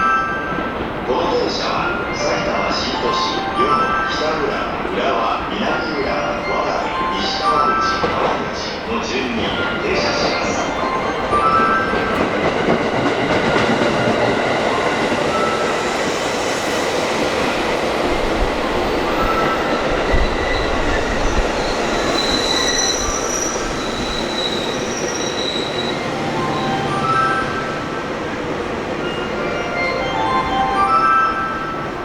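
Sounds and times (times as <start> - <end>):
train wheels on rails: 0.5 - 29.9
high-pitched wheel squeals: 19.3 - 27.5.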